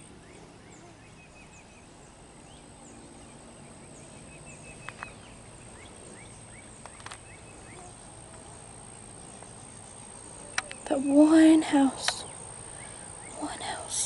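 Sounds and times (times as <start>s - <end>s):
birds chirping: 0.0s - 14.0s
high insect drone: 1.6s - 14.0s
sharp clicks: 6.8s - 7.3s, 10.5s - 10.8s, 12.0s - 12.4s.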